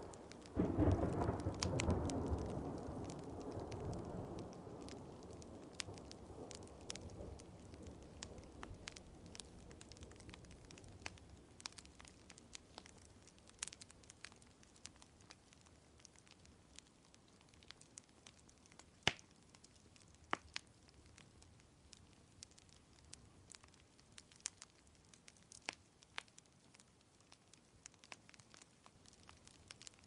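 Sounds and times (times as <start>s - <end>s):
thunder rumble: 0.0s - 10.8s
rain pattering: 0.0s - 30.0s
wood fire crackling: 0.0s - 30.0s.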